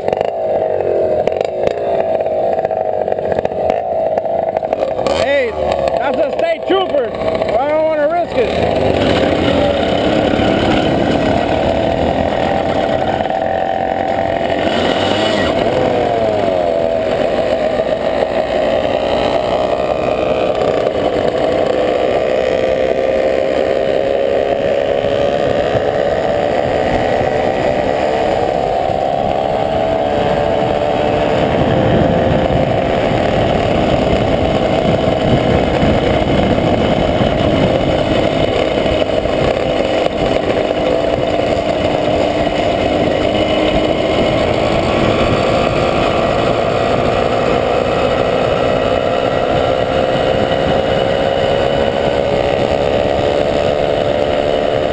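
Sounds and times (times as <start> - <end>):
motorcycle engine running: 0.0 - 54.9
steady rushing noise: 0.0 - 54.9.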